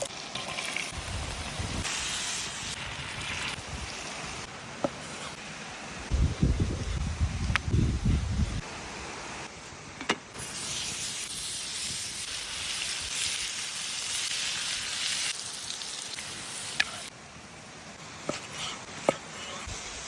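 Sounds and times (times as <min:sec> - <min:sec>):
steady hiss: 0:00.1 - 0:20.0.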